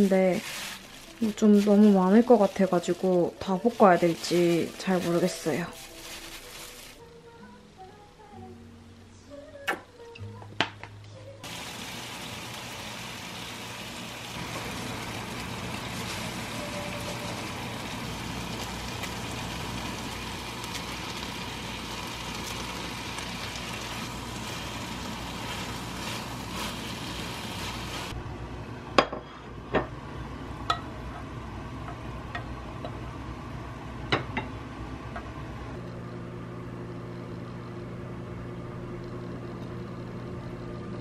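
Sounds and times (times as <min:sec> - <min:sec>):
chicken sizzling in a pan: 0:11.4 - 0:28.2.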